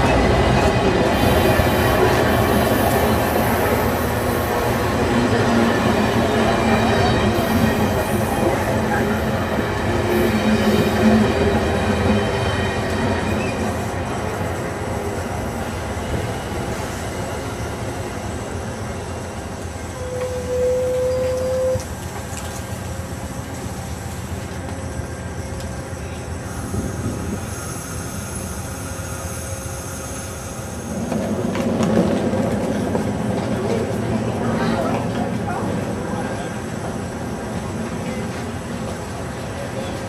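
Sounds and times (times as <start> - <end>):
train wheels rumbling on rail: 0.0 - 40.0
high wheel squeal: 20.0 - 21.8
hiss: 26.5 - 31.4.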